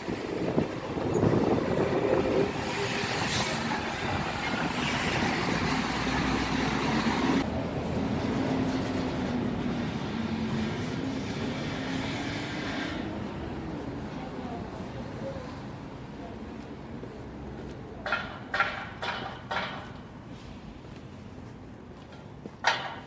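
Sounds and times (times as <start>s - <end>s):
vehicle engine hum: 0.0s - 17.7s
street traffic: 0.0s - 23.0s.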